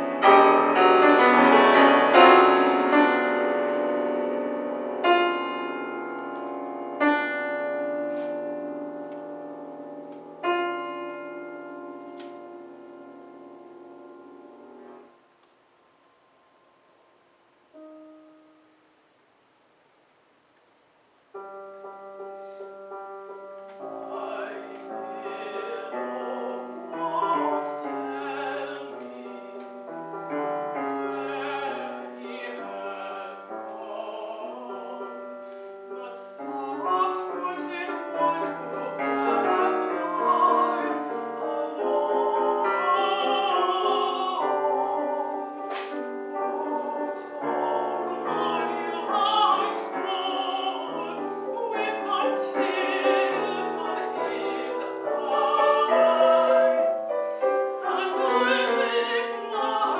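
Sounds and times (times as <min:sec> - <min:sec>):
piano: 0:00.0 - 0:59.9
woman singing with vibrato: 0:23.8 - 0:29.7, 0:30.3 - 0:35.3, 0:35.9 - 0:57.1, 0:57.7 - 0:59.9.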